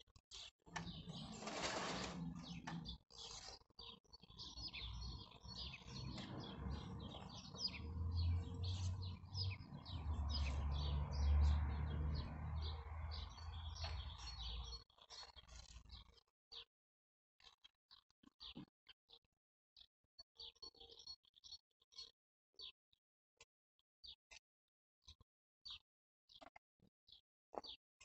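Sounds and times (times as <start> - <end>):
small birds chirping: 0.1 - 16.7, 17.4 - 19.2, 19.8 - 22.8.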